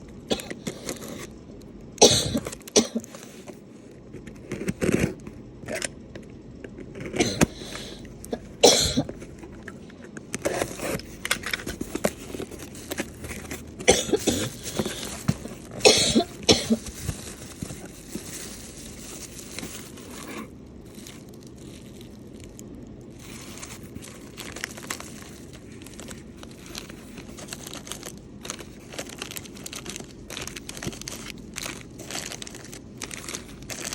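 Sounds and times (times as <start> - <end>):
packaging rustling: 9.0 - 33.9.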